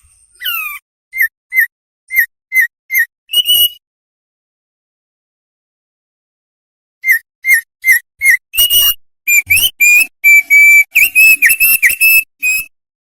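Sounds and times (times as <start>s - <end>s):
songbird whistling: 0.3s - 3.8s, 7.0s - 12.7s.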